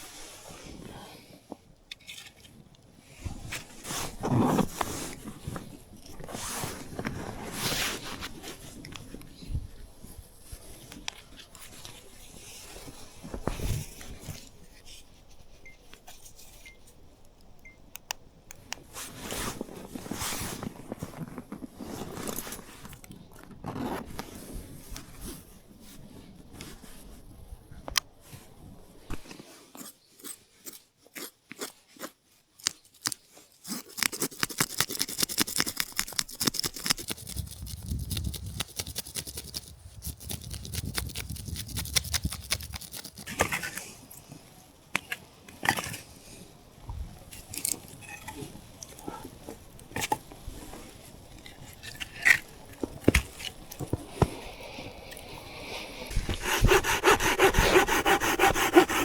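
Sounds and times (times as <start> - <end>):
hand saw cutting wood: 56.2 - 59.0.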